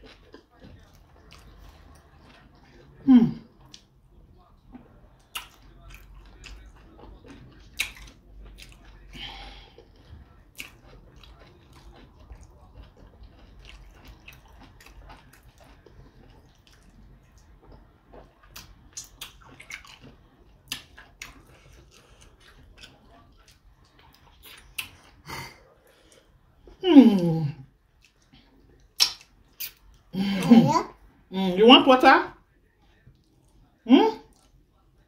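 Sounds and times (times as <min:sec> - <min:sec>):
person chewing with lip smacks: 0:04.7 - 0:09.0, 0:09.8 - 0:25.2, 0:28.0 - 0:30.0.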